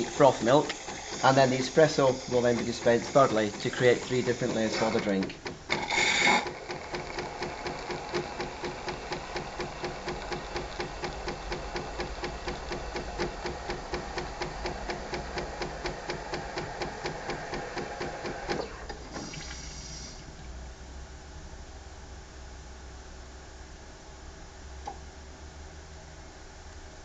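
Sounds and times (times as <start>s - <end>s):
coffee machine pump pulsing: 0.0s - 20.5s.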